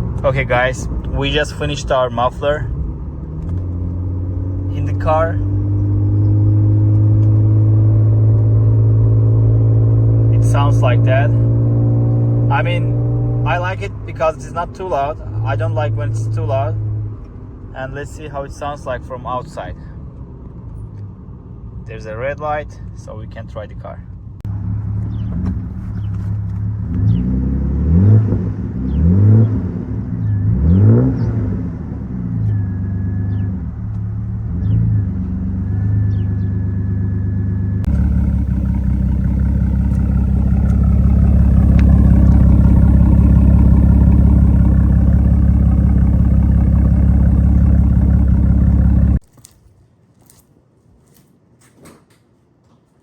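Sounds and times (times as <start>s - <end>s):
car engine revving and idling: 0.0s - 18.5s, 24.4s - 49.2s
loud engine drone: 37.8s - 49.2s.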